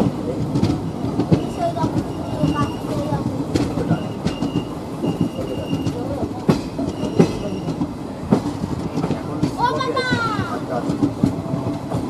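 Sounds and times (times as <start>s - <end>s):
train rumble: 0.0s - 12.0s
wheels clacking over rail joints: 0.0s - 12.0s
high wheel squeal: 0.9s - 3.2s, 3.8s - 7.8s.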